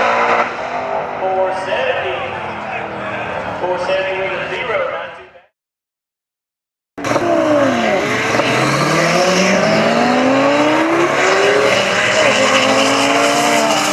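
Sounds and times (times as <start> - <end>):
drag car engine at full throttle: 0.0 - 3.7, 7.0 - 13.9.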